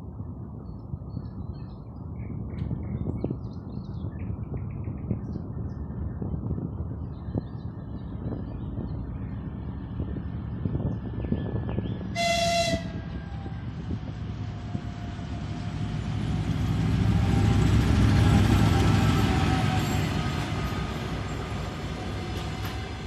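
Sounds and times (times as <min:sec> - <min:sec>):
diesel locomotive engine passing: 0:08.0 - 0:23.0.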